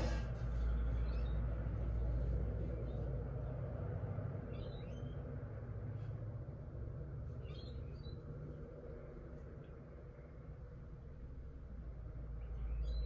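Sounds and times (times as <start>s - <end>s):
low outdoor rumble: 0.0s - 13.0s
bird chirps: 4.5s - 5.3s, 12.4s - 13.0s.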